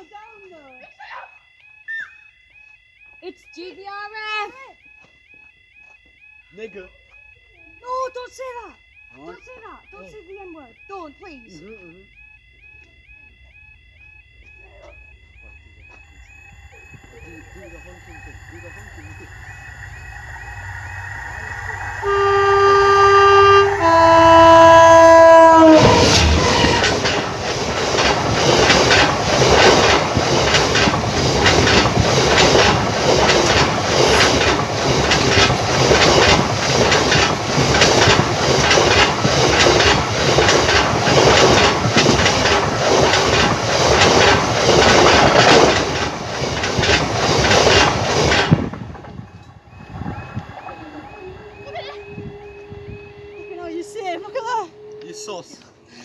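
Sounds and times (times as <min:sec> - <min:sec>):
wheels clicking over rail joints: 0:14.4 - 0:56.0
train rolling past: 0:14.9 - 0:56.0
two-tone locomotive horn: 0:20.2 - 0:42.6, 0:49.6 - 0:56.0.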